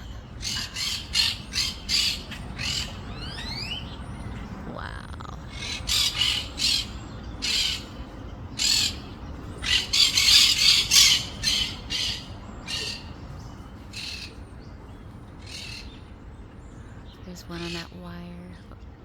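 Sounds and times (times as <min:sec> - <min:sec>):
parrots squawking: 0:00.0 - 0:03.9, 0:04.7 - 0:13.2.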